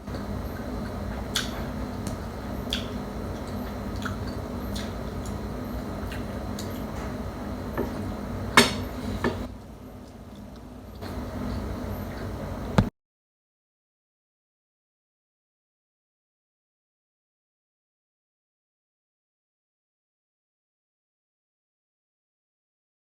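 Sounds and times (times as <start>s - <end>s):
soft eating sounds: 0.0s - 12.8s
low room hum: 0.0s - 12.9s
cutlery clicking on dishes: 8.6s - 9.5s.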